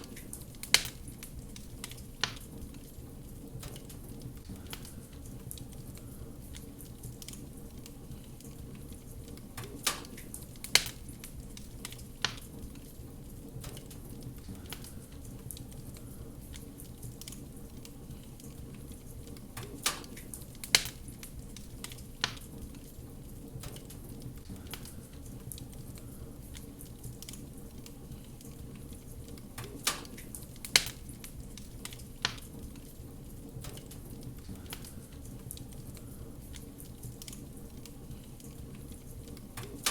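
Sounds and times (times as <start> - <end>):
sharp fire pops: 0.0 - 39.9
wood fire crackling: 0.0 - 39.9.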